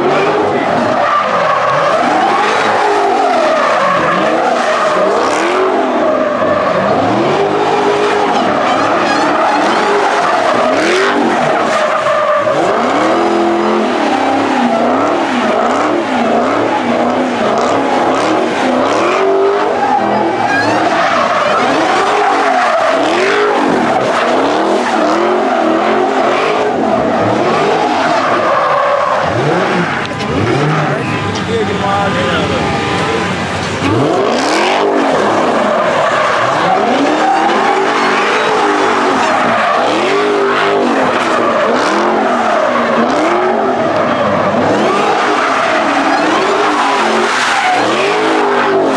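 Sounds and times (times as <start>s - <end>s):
car engine revving: 0.0s - 48.9s
tyre squeal: 7.7s - 16.7s, 17.4s - 25.8s.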